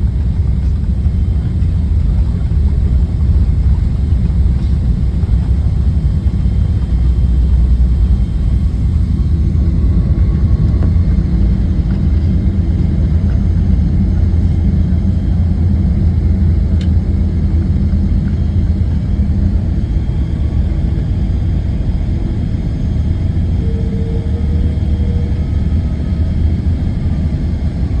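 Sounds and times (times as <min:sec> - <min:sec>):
airliner cabin rumble: 0:00.0 - 0:28.0
faint tone: 0:21.6 - 0:27.2.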